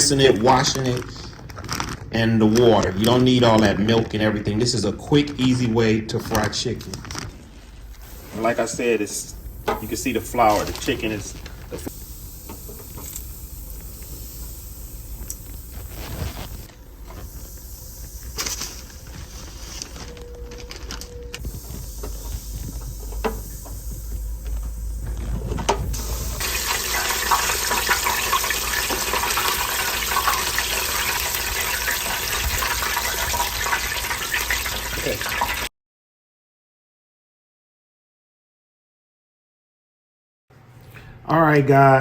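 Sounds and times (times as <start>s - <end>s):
chicken frying in hot oil: 8.2s - 16.7s, 21.4s - 35.7s.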